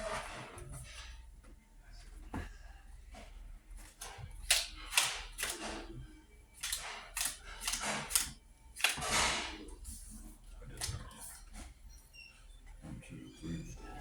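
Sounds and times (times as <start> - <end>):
playing cards slapping on table: 3.9 - 5.8, 6.6 - 9.5.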